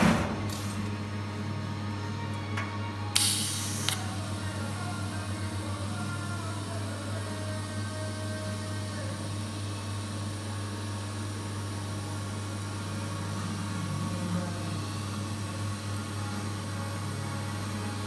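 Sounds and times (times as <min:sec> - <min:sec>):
welding machine humming: 0:00.0 - 0:18.0
welding hiss: 0:03.2 - 0:09.5.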